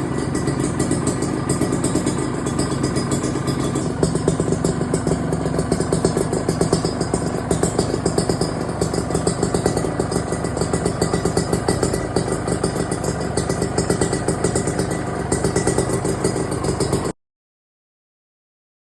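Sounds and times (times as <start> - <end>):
two-stroke engine idling: 0.0 - 17.2.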